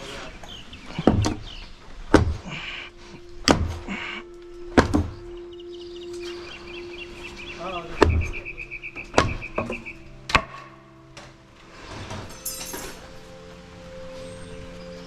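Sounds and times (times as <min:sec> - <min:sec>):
hammer blows on wood: 0:00.9 - 0:05.4.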